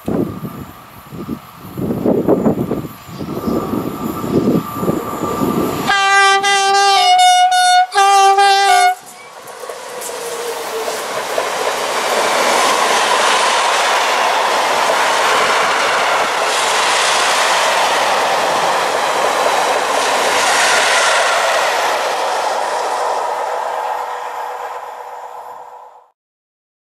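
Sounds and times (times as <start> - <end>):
freight train wheels rushing: 0.0 - 26.1
wheels clickety-clack: 9.0 - 21.0.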